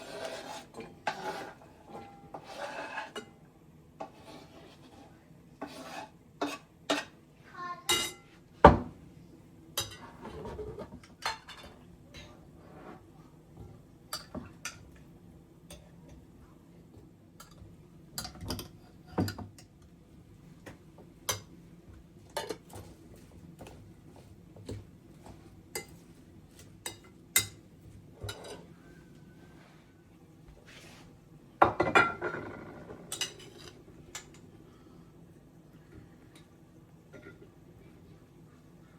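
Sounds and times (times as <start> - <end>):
dishes and utensils clinking: 7.9 - 8.3, 9.8 - 13.0, 22.3 - 22.9, 24.6 - 26.0, 26.6 - 27.6, 28.2 - 29.0, 31.6 - 34.4.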